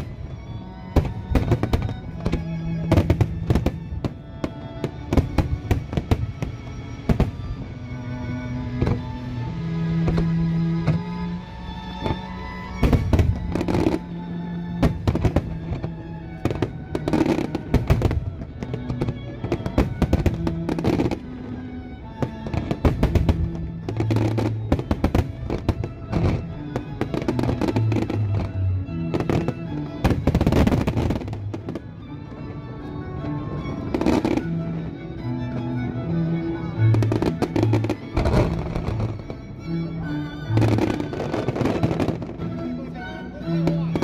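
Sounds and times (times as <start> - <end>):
music with held notes: 0.0 - 44.0
fireworks bursting: 0.8 - 7.6, 12.0 - 32.4, 33.2 - 34.9, 36.8 - 42.5.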